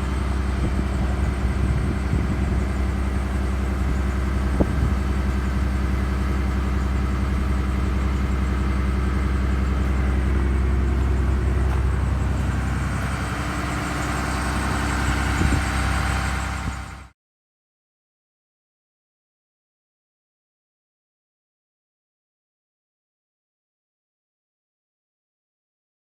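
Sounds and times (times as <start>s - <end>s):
diesel bus engine idling: 0.0s - 17.2s.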